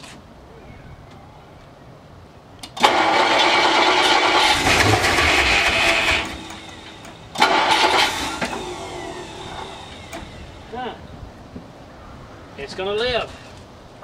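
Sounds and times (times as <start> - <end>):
car engine cranking and firing: 2.7 - 10.8.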